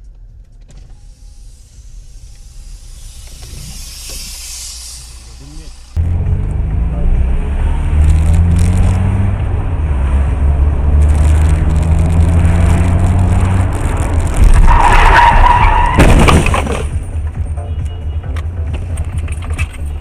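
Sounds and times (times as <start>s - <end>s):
car engine humming: 0.0s - 19.8s
tyres squealing in a skid: 14.4s - 16.8s.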